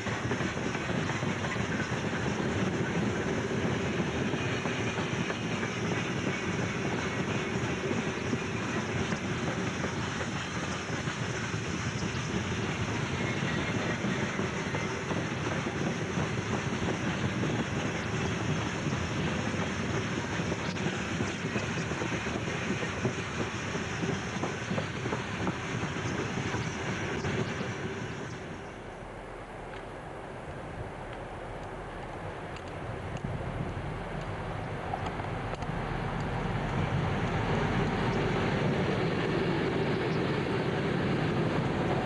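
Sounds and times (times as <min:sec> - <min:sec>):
train wheels clattering on rails: 0:00.0 - 0:28.8, 0:31.2 - 0:42.0.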